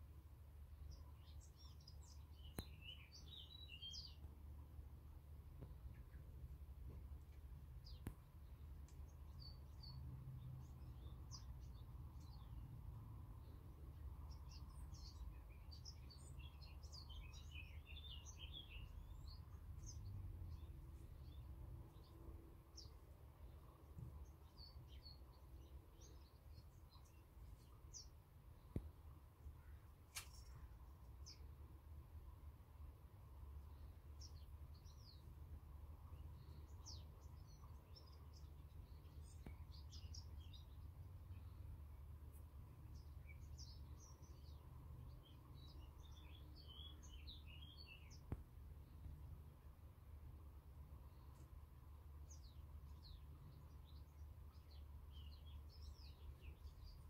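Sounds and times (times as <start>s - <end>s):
songbirds chirping: 0.0s - 57.0s
sharp click: 30.1s - 30.6s.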